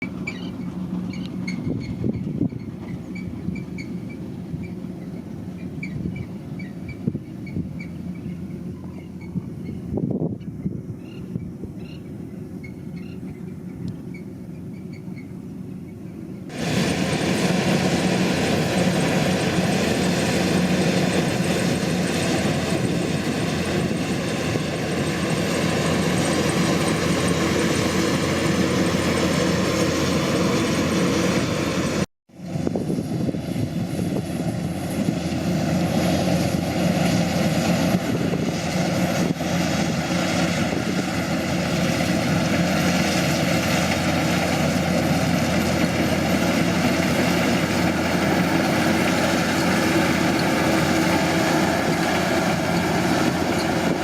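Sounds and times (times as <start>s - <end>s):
combine harvester drone: 0.0s - 54.0s.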